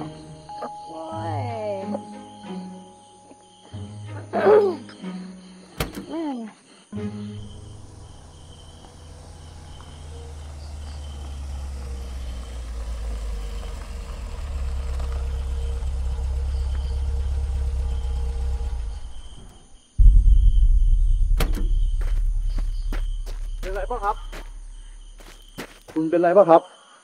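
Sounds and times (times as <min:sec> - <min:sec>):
crickets chirping: 0:00.0 - 0:27.0
car engine rumbling: 0:07.2 - 0:26.0
deep boom: 0:17.8 - 0:25.2.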